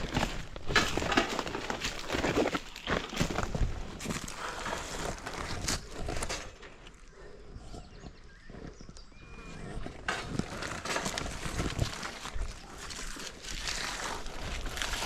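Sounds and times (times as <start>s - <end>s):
rustling in undergrowth: 0.0s - 6.8s, 10.1s - 15.0s.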